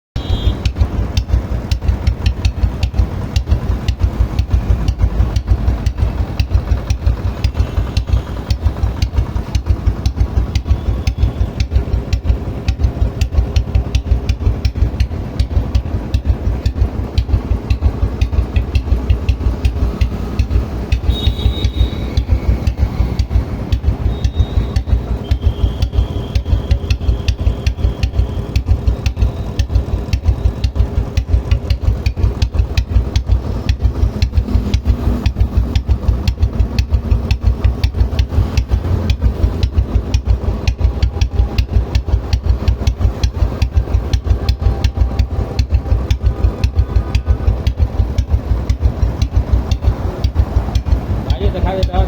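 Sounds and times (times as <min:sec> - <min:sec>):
motorcycle engine idling: 0:00.2 - 0:52.0.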